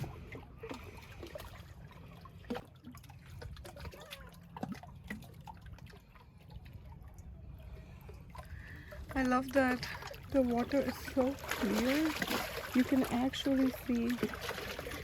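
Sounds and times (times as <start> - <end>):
water plops and drips: 0.0 - 15.0
waves lapping against rocks: 0.0 - 15.0.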